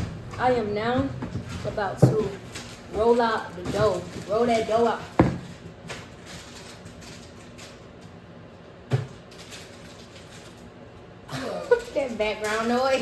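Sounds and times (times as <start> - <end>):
kitchen items knocking: 0.0 - 5.7.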